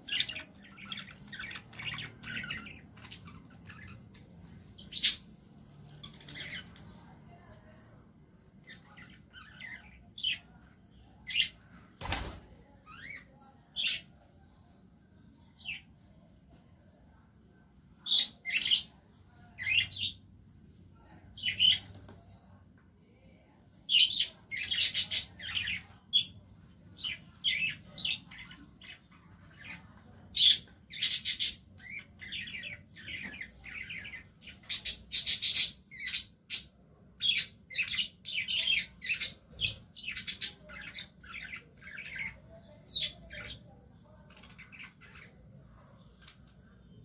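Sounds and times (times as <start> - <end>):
birds chirping and squawking: 0.0 - 7.0, 8.7 - 10.5, 21.4 - 21.8, 23.9 - 26.4, 27.0 - 46.5.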